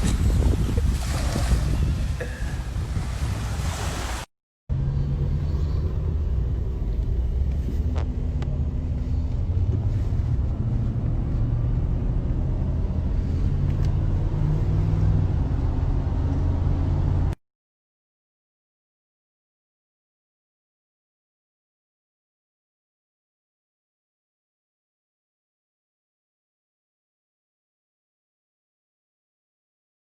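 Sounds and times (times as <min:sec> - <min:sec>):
surf: 0:00.0 - 0:04.3
car engine and road noise: 0:00.0 - 0:17.4
wind: 0:00.0 - 0:17.4.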